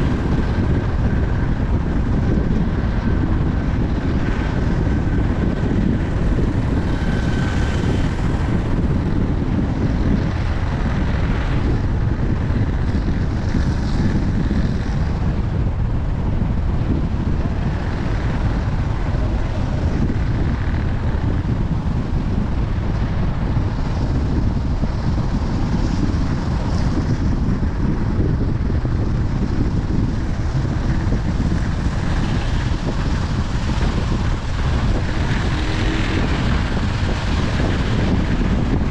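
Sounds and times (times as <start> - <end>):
vehicle road and wind noise: 0.0 - 38.9.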